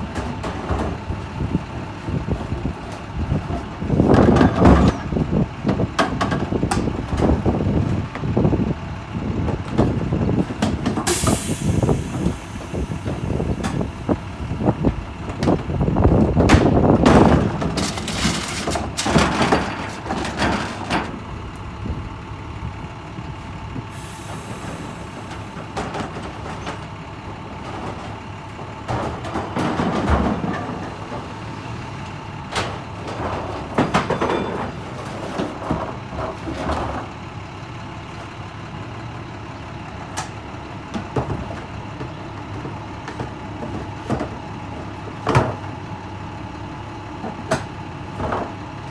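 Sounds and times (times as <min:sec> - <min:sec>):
garbage truck engine running: 0:00.0 - 0:48.9
clanks and thuds: 0:03.6 - 0:08.4, 0:14.8 - 0:21.4, 0:27.6 - 0:31.3, 0:32.5 - 0:37.1
air brakes hissing: 0:11.0 - 0:13.9, 0:23.9 - 0:25.6.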